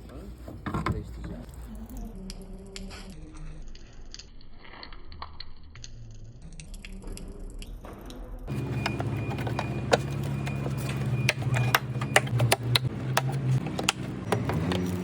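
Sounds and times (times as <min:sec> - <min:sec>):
sharp clicks and taps: 0:08.8 - 0:15.0.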